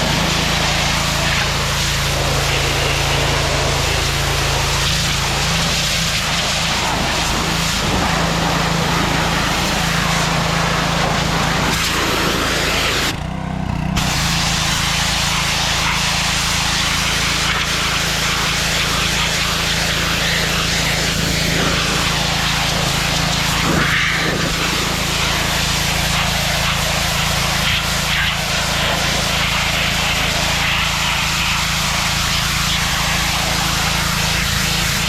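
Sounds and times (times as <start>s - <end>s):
loud rushing noise: 0.0s - 25.6s
motor running: 0.0s - 35.0s.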